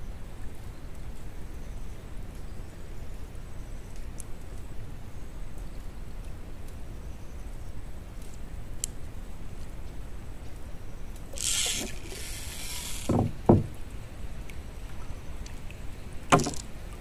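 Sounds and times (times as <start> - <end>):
short hiss: 11.4 - 13.2
knocks on wooden boat: 13.0 - 13.8, 16.3 - 16.6.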